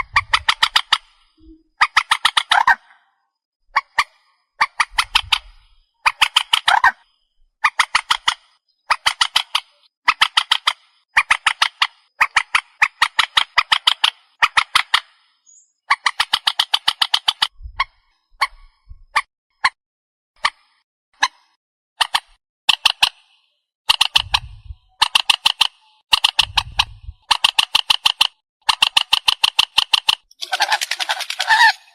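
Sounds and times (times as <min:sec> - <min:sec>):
swamphen rattling calls: 0:30.4 - 0:31.9.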